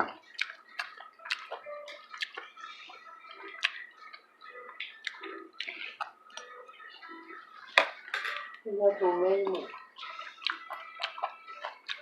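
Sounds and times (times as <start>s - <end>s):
utensils clinking against dishes: 7.8s - 8.6s.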